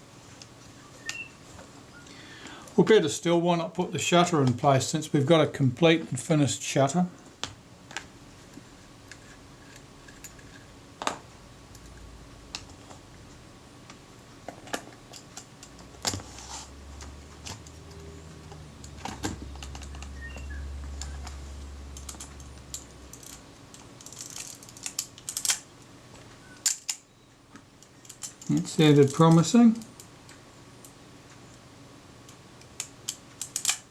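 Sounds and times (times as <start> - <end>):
small metal camera parts clicking: 33.1 - 33.8.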